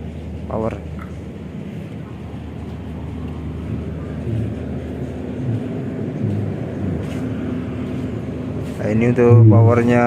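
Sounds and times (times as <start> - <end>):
diesel generator droning: 0.0 - 10.0
low thumps: 2.5 - 8.7.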